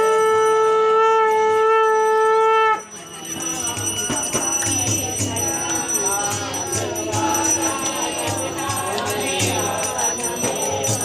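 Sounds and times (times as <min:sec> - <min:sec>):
conch shell blown: 0:00.0 - 0:03.1.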